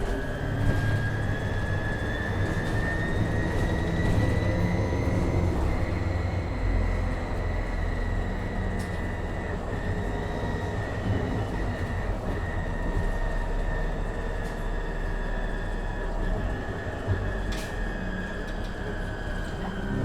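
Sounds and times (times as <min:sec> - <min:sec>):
bus engine rumble: 0:00.0 - 0:20.0.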